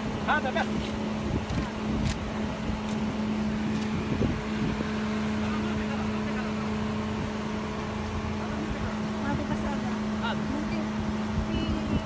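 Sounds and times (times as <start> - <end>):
car engine idling: 0.0 - 12.0
roadside background noise: 0.0 - 12.0.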